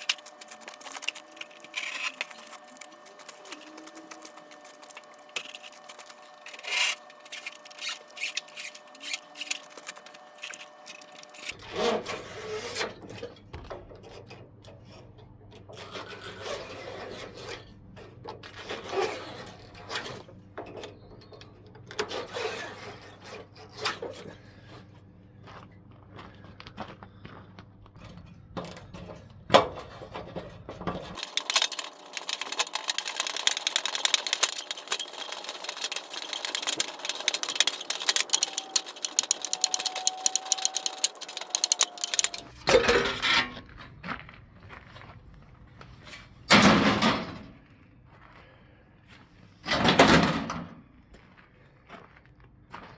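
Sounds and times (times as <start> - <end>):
metal parts scraping and knocking: 0.0 - 24.3, 28.0 - 43.6.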